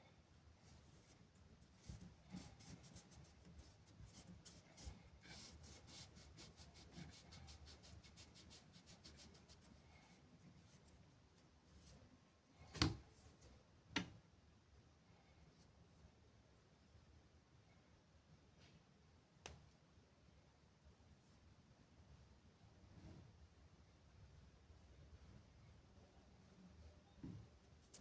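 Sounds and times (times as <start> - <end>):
faint scratching on a surface: 0.6 - 12.1, 27.3 - 28.0.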